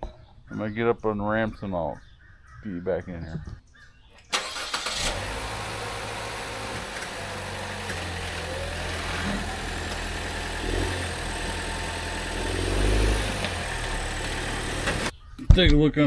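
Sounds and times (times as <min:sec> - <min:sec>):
car engine running at low speed: 0:04.4 - 0:15.1.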